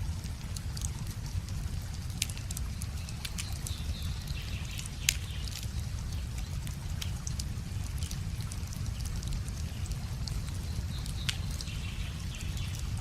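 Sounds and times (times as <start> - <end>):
small river trickling: 0.0 - 13.0
wood fire crackling: 0.0 - 13.0.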